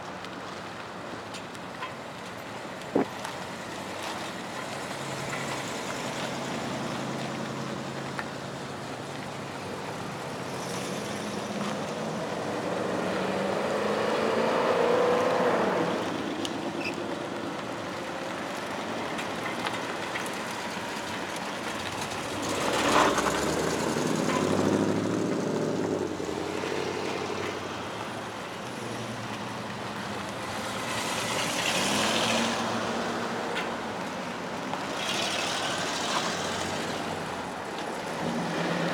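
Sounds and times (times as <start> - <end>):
car engines accelerating past: 10.2 - 16.4, 21.8 - 27.9, 30.4 - 33.5, 34.8 - 38.9.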